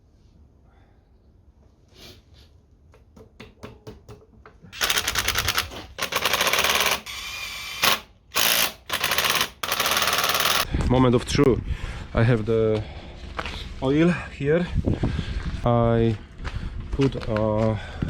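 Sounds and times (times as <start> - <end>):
impact wrench hammering: 3.0 - 10.6.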